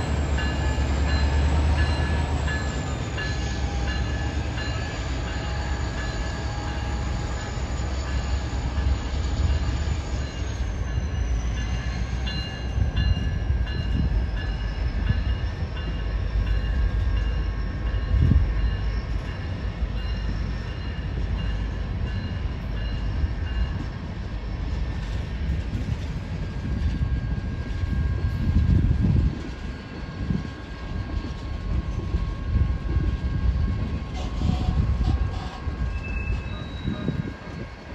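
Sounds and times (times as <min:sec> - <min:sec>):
train wheels rumbling on track: 0:00.0 - 0:37.9.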